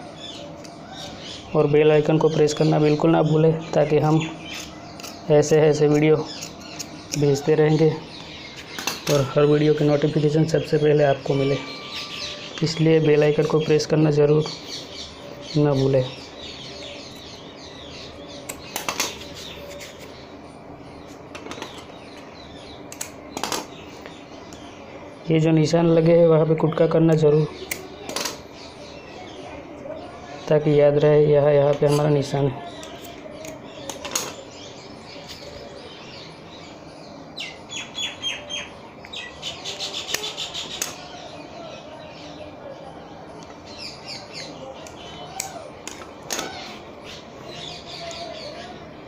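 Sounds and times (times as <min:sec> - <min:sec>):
small birds chirping: 0:00.0 - 0:49.0
small bird chirping: 0:31.8 - 0:45.7.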